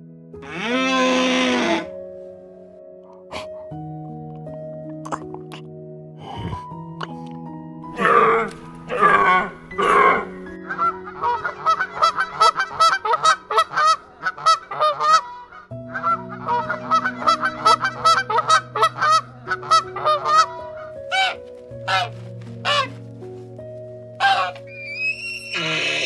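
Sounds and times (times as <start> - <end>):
soft background music: 0.0 - 26.0
geese honking: 8.0 - 23.0, 24.2 - 26.0.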